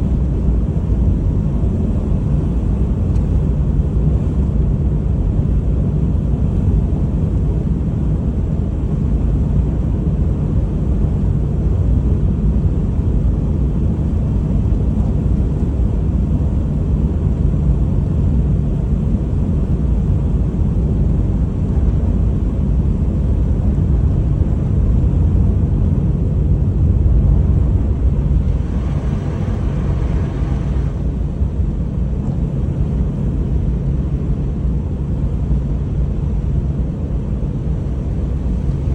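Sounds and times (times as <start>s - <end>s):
faint engine hum: 0.0s - 38.9s
tyre and road noise rumble: 21.2s - 33.5s.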